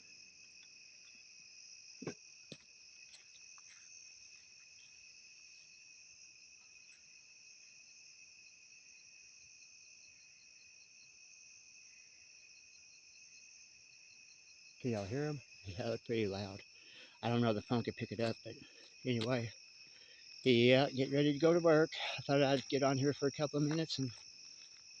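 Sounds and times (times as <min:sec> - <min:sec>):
frogs chorus: 0:14.1 - 0:25.0.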